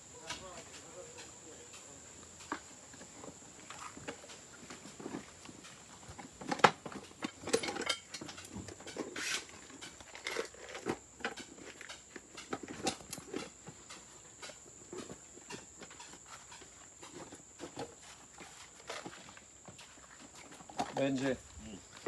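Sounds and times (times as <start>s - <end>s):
knocks clicks and clatter: 5.6s - 14.6s.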